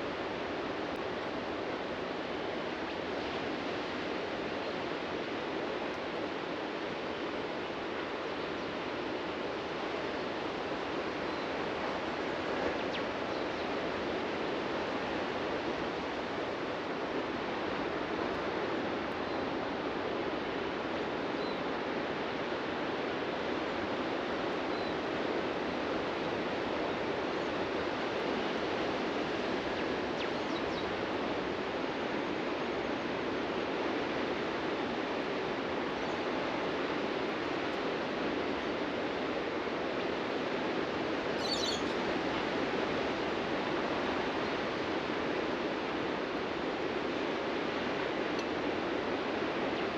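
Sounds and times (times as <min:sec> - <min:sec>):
ocean surf washing onto beach: 0:00.0 - 0:30.2, 0:30.8 - 0:41.4, 0:42.0 - 0:49.9
faint high bird chirps: 0:41.4 - 0:42.0.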